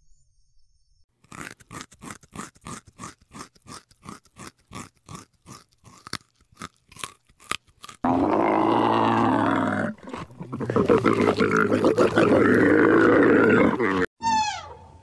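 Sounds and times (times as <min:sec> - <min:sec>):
camel bellowing: 0:08.1 - 0:14.1.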